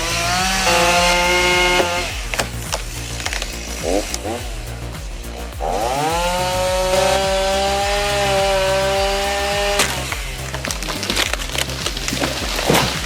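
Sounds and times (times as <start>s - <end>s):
chainsaw at full throttle: 0.0s - 4.6s, 5.6s - 13.0s
wood cracking and snapping: 6.8s - 13.0s.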